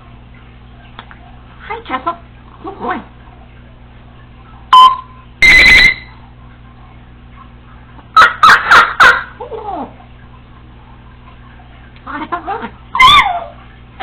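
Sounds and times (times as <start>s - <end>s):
parrot mimicking beep: 4.7s - 6.1s
parrot chirp: 4.8s - 6.2s
parrot sharp calls: 5.4s - 6.2s, 8.2s - 9.4s, 12.9s - 13.6s.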